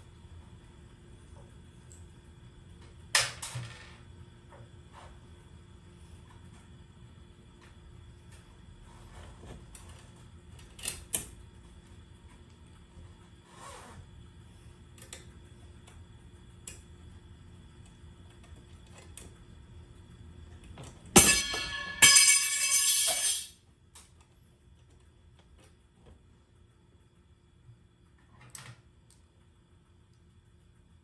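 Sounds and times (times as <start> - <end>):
loud ringing clatter: 21.2 - 23.5.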